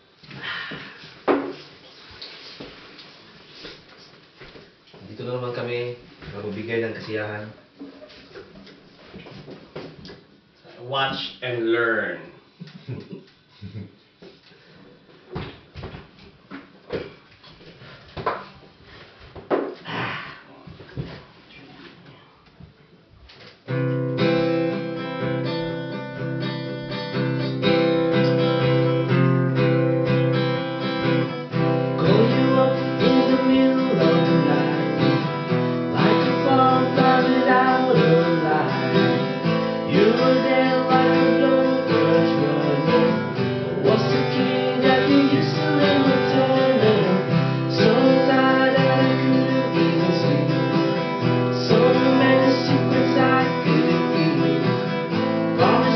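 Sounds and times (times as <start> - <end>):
acoustic guitar strumming: 23.7 - 55.9
person singing: 32.0 - 35.3, 35.9 - 54.9, 55.6 - 55.9.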